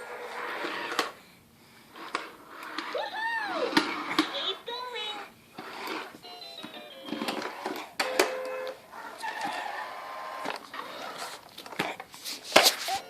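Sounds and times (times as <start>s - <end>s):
toy car electronic beeps and melody: 6.2s - 9.4s.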